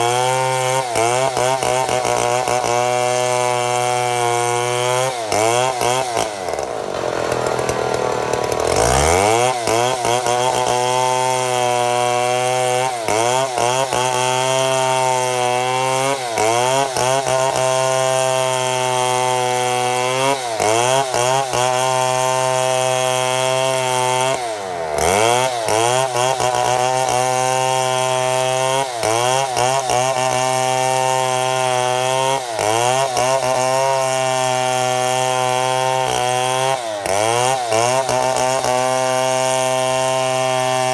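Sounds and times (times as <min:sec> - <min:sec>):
chainsaw cutting log: 0:00.0 - 0:40.9.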